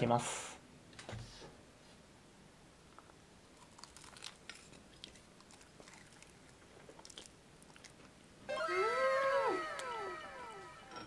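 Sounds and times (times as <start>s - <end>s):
chewing crispy fried chicken: 3.5s - 8.2s.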